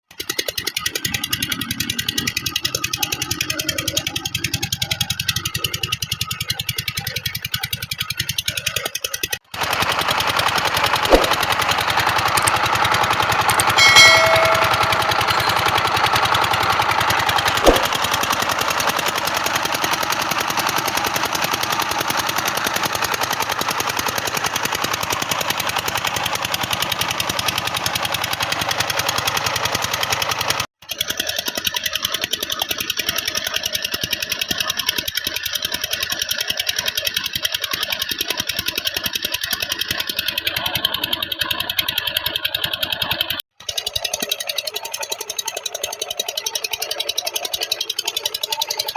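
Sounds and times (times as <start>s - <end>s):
diesel engine knocking: 0.1s - 48.9s
high-pitched squeak: 13.5s - 15.9s.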